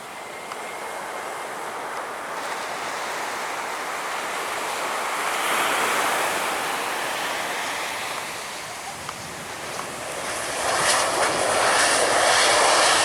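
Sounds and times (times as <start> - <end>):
wave rushing onto beach: 0.8 - 10.4.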